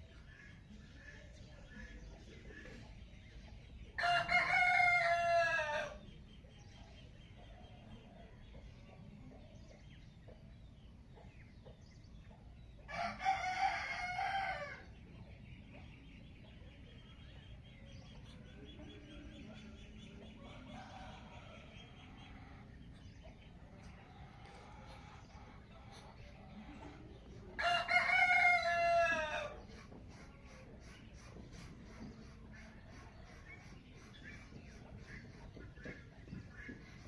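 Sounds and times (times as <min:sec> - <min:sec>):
rooster crowing: 0:04.0 - 0:06.0, 0:27.6 - 0:29.5.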